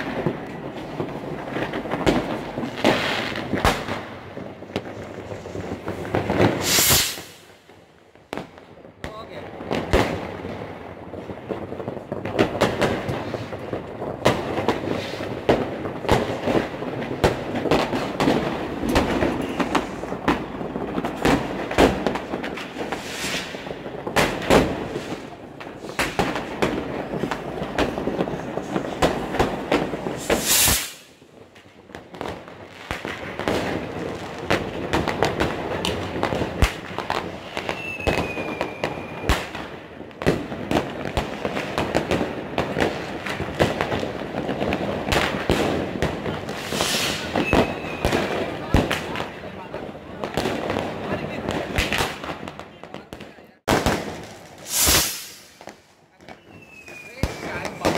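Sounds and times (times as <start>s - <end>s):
fireworks crackling and banging: 0.0s - 57.9s
firework hissing loudly: 5.0s - 7.6s, 22.9s - 23.7s, 30.2s - 31.2s, 46.4s - 48.1s, 54.5s - 55.6s.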